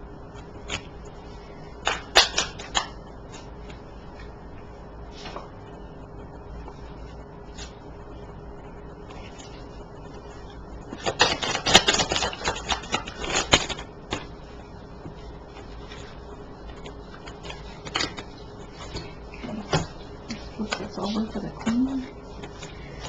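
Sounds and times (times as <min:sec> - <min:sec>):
cards being shuffled: 0:01.8 - 0:04.3, 0:10.9 - 0:14.3, 0:15.6 - 0:19.2.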